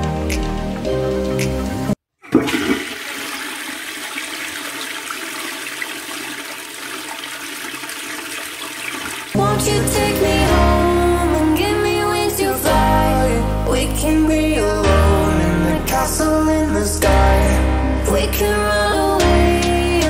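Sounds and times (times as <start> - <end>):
music: 0.0 - 2.0, 9.4 - 20.0
water rushing: 2.3 - 10.6.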